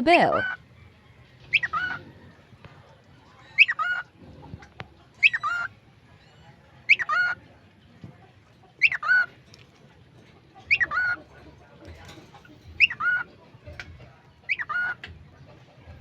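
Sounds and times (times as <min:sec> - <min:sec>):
cockatiel talking: 0:00.0 - 0:00.6, 0:05.2 - 0:05.7, 0:06.9 - 0:07.4, 0:10.7 - 0:11.2, 0:12.8 - 0:13.3, 0:14.5 - 0:15.0.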